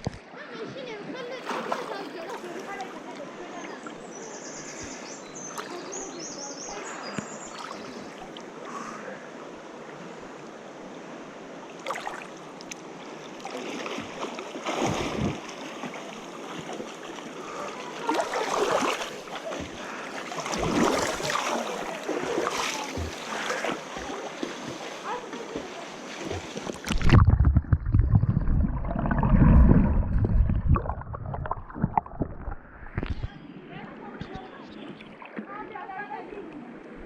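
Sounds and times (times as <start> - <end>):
water splashing surges: 0.0 - 4.1, 5.5 - 36.4
running water rushing: 9.5 - 37.0.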